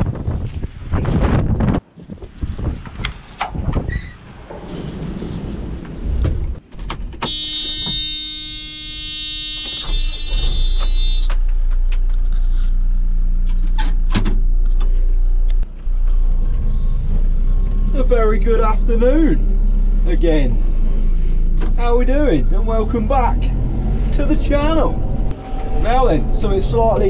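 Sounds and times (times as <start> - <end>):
engine rumbling: 0.0 - 27.0
loud buzzer tone: 7.2 - 11.3.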